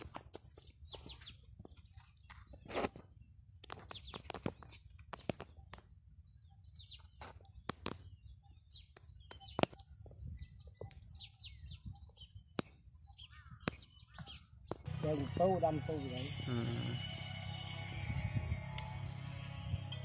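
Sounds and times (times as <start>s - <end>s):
small birds chirping: 0.0s - 19.0s
sharp clicks and snaps: 7.4s - 8.0s, 18.8s - 19.0s.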